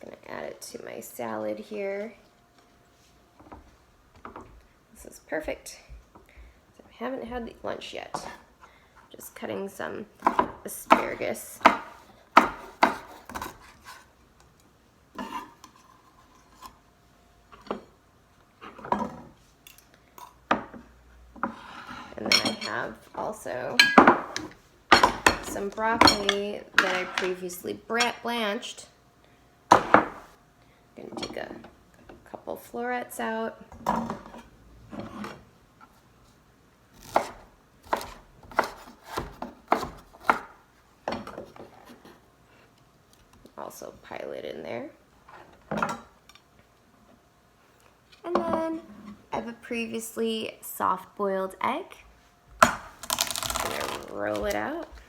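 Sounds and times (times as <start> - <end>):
knife chopping on cutting board: 10.2 - 13.7, 37.0 - 40.5.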